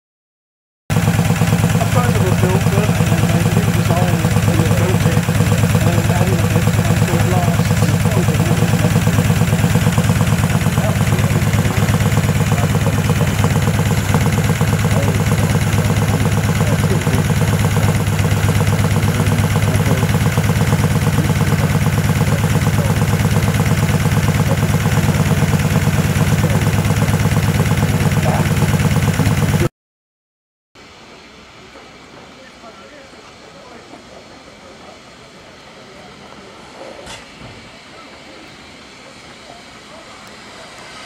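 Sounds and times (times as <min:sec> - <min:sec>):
engine idling with rapid beat: 0:00.9 - 0:29.7.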